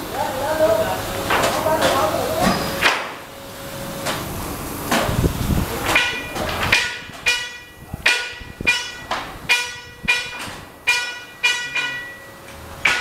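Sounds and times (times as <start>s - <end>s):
hammer on metal: 5.9s - 13.0s.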